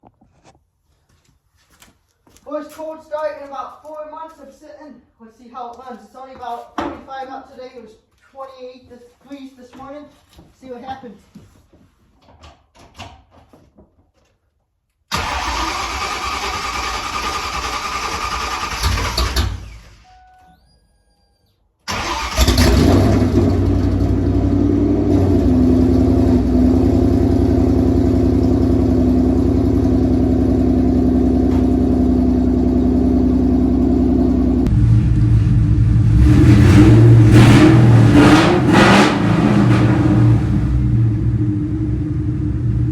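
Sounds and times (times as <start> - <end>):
car engine starting and revving: 15.1 - 20.0, 21.9 - 42.9.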